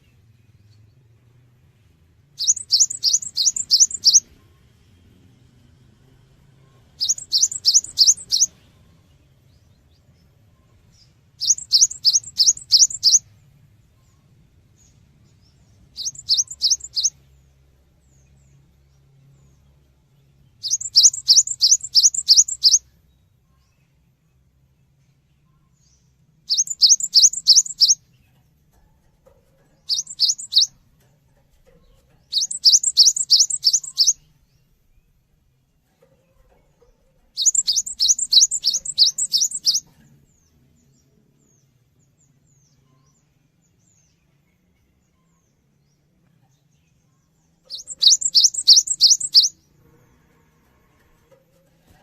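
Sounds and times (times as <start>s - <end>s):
bird singing rapid high notes: 2.4s - 4.3s, 7.0s - 8.6s, 11.4s - 13.2s, 15.9s - 17.2s, 20.6s - 22.8s, 26.5s - 28.0s, 29.9s - 30.8s, 32.3s - 34.3s, 37.4s - 39.9s, 47.7s - 49.7s.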